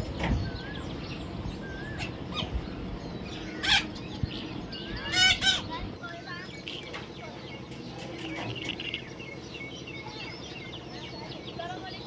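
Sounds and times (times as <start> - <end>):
parrot squawking: 5.0 - 5.8.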